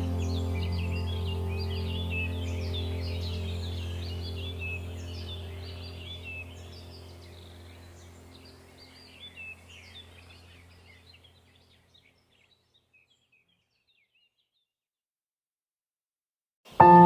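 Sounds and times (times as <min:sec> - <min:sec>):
steady low drone: 0:00.0 - 0:10.9
small birds chirping: 0:00.0 - 0:14.8.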